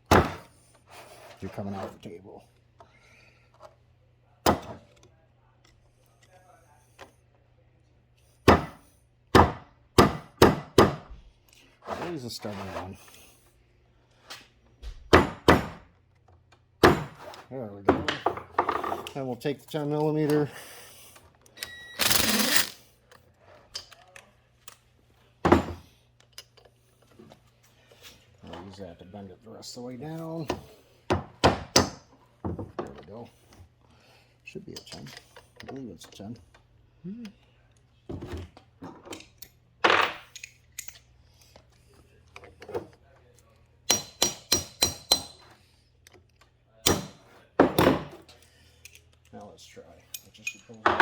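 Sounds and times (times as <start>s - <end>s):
hand tools clicking on metal: 22.0s - 22.8s
hammer striking metal: 43.9s - 45.4s.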